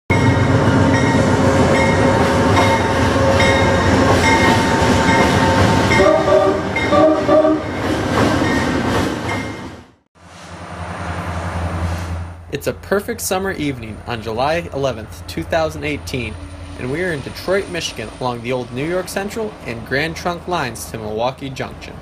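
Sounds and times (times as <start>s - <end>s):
loud train rumble: 0.1s - 22.0s
train horn blasts: 5.9s - 7.7s.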